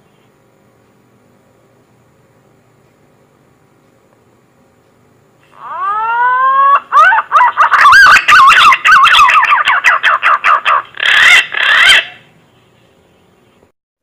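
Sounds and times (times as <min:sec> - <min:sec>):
pigeon whistling call: 0:05.6 - 0:12.2.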